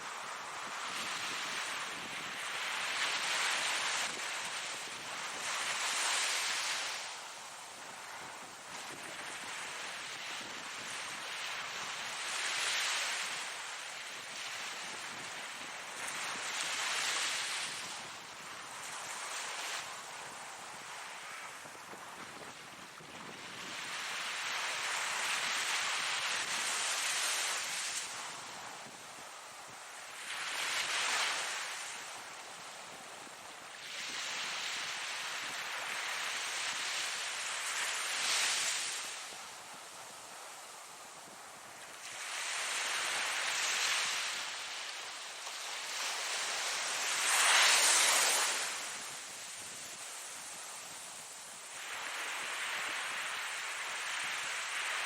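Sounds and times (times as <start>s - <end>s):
ocean waves breaking: 42.0s - 51.0s
ocean wave breaking: 45.4s - 49.4s.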